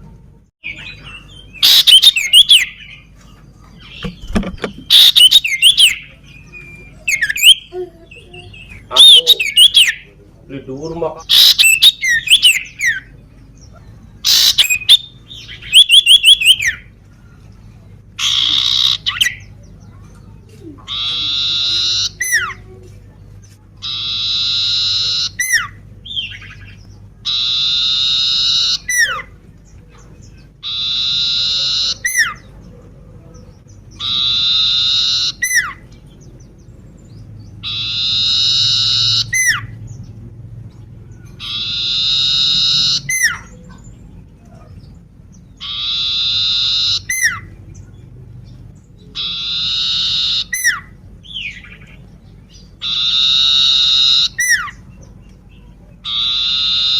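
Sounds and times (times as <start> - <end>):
bird trilling: 0.6 - 3.2, 3.8 - 17.0, 18.2 - 19.8, 20.6 - 22.8, 23.8 - 32.8, 33.6 - 40.1, 41.0 - 44.0, 44.6 - 47.9, 48.8 - 56.9
bird harsh rasping call: 0.7 - 3.1, 3.9 - 7.8, 8.5 - 10.1, 11.2 - 13.1, 14.2 - 16.9, 18.2 - 19.5, 20.9 - 22.6, 23.8 - 29.4, 30.6 - 32.5, 33.9 - 35.9, 37.6 - 39.8, 41.4 - 43.8, 45.6 - 47.6, 49.1 - 54.9, 56.0 - 56.9.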